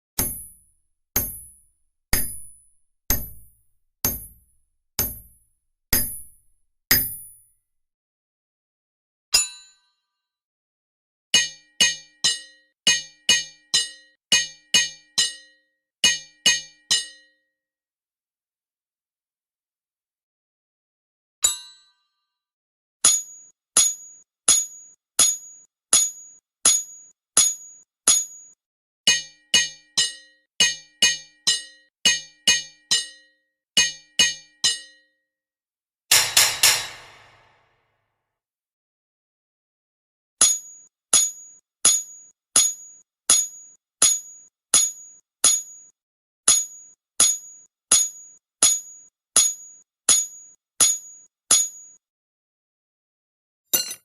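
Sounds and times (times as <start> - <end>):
hammer striking anvil: 0.2 - 7.4, 11.4 - 17.3, 29.1 - 33.2, 36.1 - 37.7, 53.7 - 54.0.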